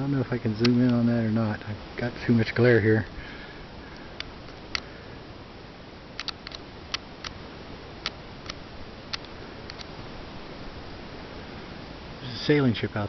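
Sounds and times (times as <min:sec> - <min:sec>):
faint hiss: 0:00.0 - 0:13.0
camera button clicks: 0:06.2 - 0:07.4.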